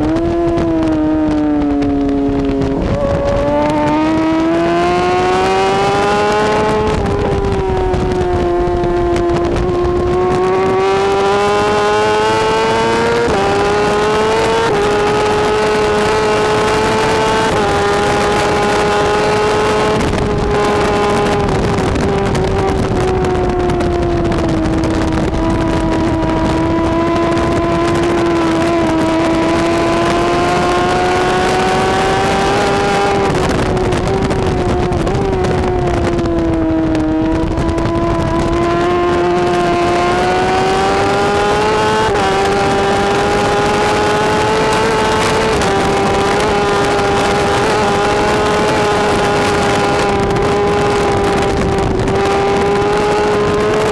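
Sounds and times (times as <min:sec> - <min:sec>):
motorcycle engine revving high: 0:00.0 - 0:53.9.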